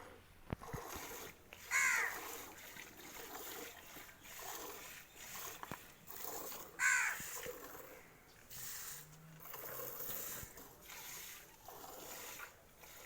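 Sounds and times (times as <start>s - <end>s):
crow cawing: 1.7s - 2.2s, 6.8s - 7.2s.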